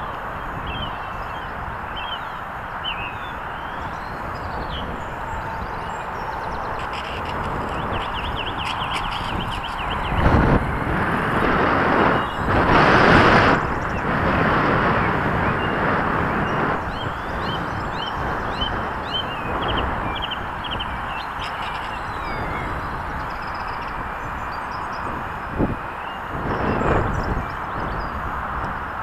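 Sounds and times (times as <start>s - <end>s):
electric motor rushing noise: 3.3s - 16.9s.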